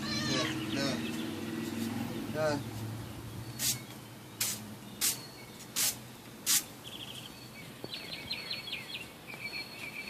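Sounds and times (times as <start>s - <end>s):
broom bristles swishing on pavement: 1.0s - 7.1s.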